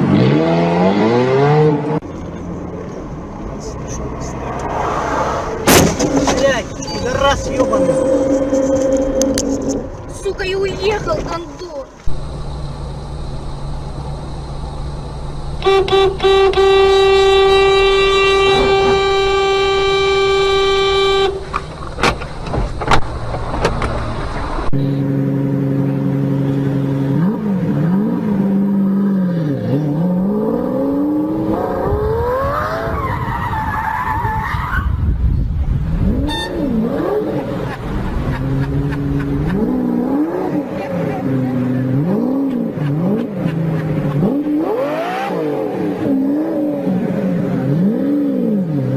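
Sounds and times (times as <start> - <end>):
engine revving: 0.0 - 2.5, 3.4 - 11.2, 12.0 - 21.6, 23.3 - 33.0, 35.8 - 48.9
high squeal: 6.2 - 10.4
car horn held: 6.9 - 10.1, 15.6 - 21.6, 36.2 - 36.8.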